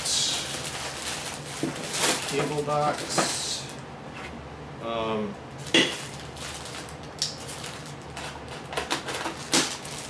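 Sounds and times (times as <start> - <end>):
packing material rustling: 0.0 - 3.2, 5.6 - 10.0.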